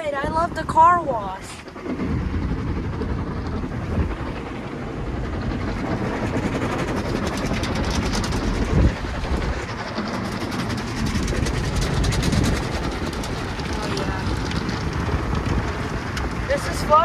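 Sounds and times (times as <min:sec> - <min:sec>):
rapid clatter: 0:00.0 - 0:17.0
car wash water beating on car: 0:01.7 - 0:17.0.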